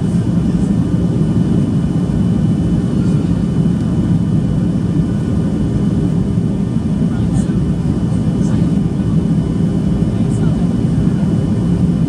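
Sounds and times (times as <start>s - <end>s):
airplane engines and airflow rumble: 0.0s - 12.0s.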